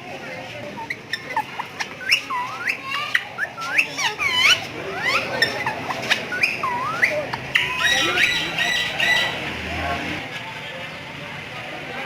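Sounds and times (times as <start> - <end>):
birds chirping and whistling: 0.8 - 9.6.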